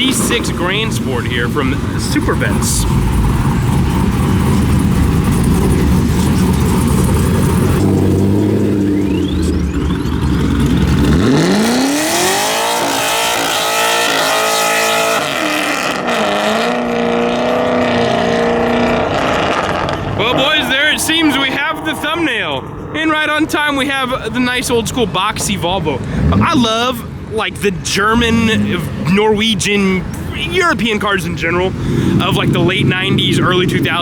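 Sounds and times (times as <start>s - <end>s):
sports car engine revving: 0.0s - 23.8s, 25.5s - 34.0s.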